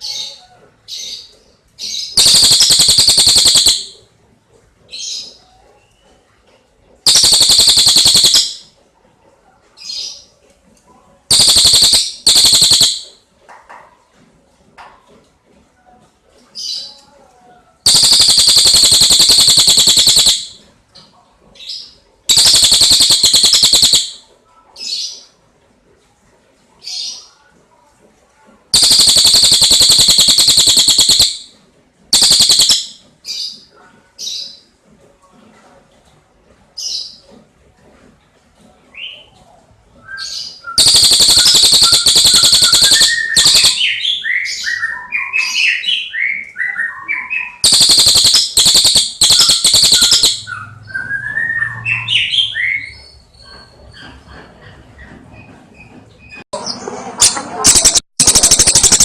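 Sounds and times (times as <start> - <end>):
kingfisher fast high trills: 2.2 - 4.0, 7.1 - 8.6, 11.3 - 13.2, 17.9 - 20.6, 22.3 - 24.2, 28.8 - 31.5, 32.2 - 33.0, 40.8 - 43.9, 47.6 - 50.5, 57.2 - 59.0.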